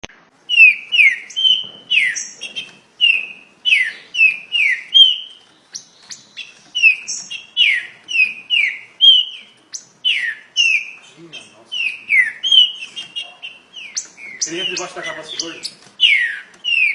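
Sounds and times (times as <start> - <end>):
bird whistling fast notes: 11.7 - 16.9.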